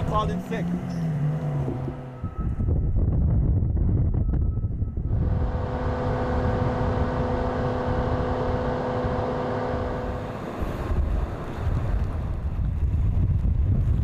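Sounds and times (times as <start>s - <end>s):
car engine at steady revs: 0.0s - 2.3s, 5.1s - 12.1s
low rumble: 0.0s - 14.0s
wind on microphone: 0.9s - 14.0s.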